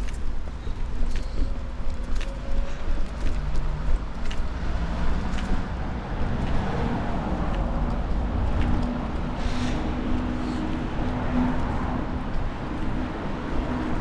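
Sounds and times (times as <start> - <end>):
low traffic rumble: 0.0 - 14.0
vehicle engine running nearby: 0.0 - 14.0
light ticks: 5.2 - 5.6.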